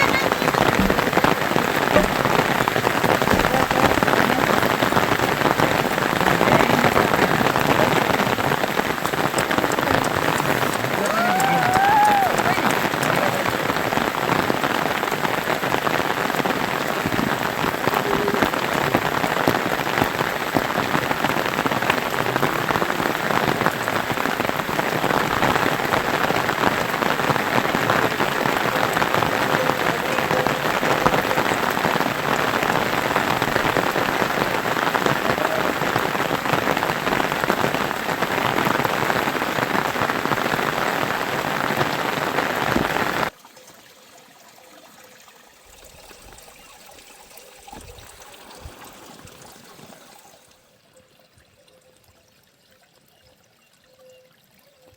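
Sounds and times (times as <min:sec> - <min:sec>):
heavy rain pattering: 0:00.0 - 0:43.4.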